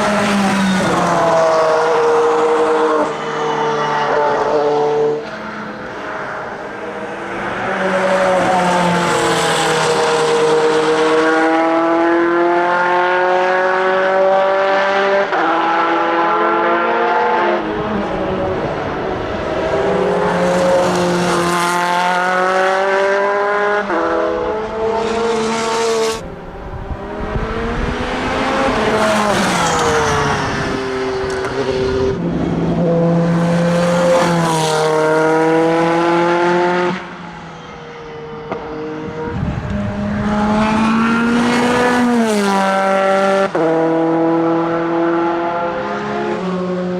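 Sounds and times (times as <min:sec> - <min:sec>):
race car engine accelerating: 0:38.5 - 0:46.9.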